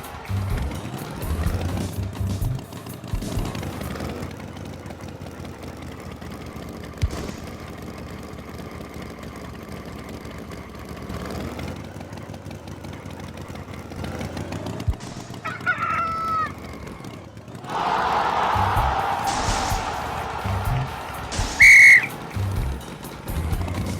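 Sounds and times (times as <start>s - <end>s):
rooster crowing: 17.7s - 22.3s.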